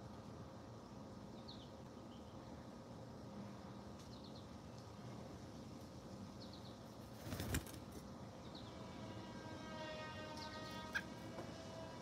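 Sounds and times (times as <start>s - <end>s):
distant horn-like tone: 8.7s - 12.0s.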